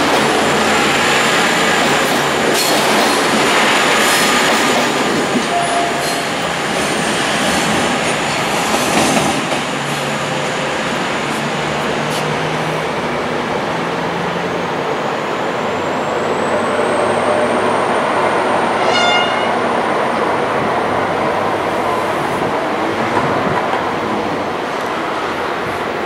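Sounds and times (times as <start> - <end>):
train engines and wheels rumbling: 0.0 - 26.0
short train horn toot: 5.5 - 6.2, 18.7 - 19.6.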